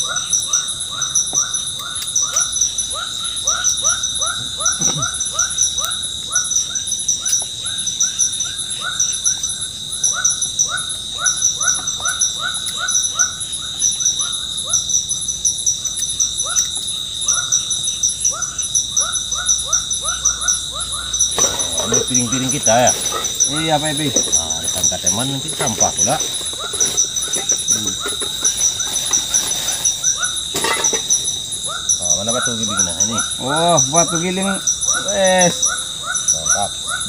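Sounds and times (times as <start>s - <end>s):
insect drone: 0.0s - 37.0s
rapid pulsing insect chirps: 0.0s - 37.0s.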